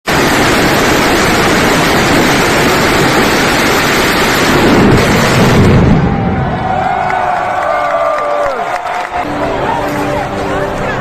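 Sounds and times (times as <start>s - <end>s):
firecracker barrage: 0.1s - 7.9s.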